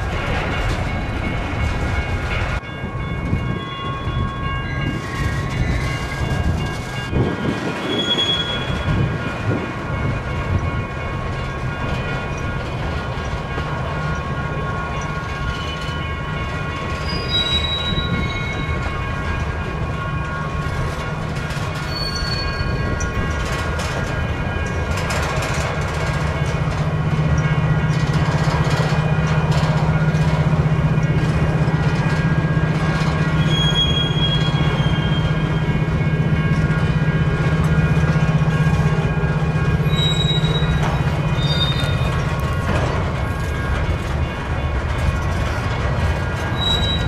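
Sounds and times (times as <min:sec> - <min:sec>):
railroad cars rumbling on rails: 0:00.0 - 0:47.0
high wheel squeals: 0:07.8 - 0:09.0, 0:17.0 - 0:18.8, 0:21.8 - 0:23.1, 0:33.3 - 0:35.4, 0:39.8 - 0:42.2, 0:46.4 - 0:47.0.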